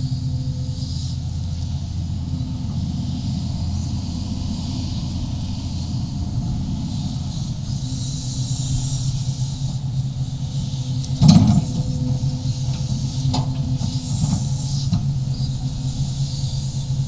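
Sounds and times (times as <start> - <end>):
excavator diesel engine: 0.0 - 17.0
hydraulic hiss: 6.9 - 17.0.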